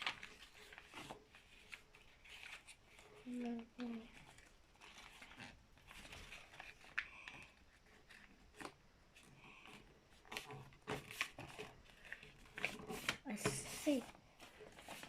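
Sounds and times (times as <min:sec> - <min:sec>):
paper being folded and creased: 0:00.0 - 0:15.0.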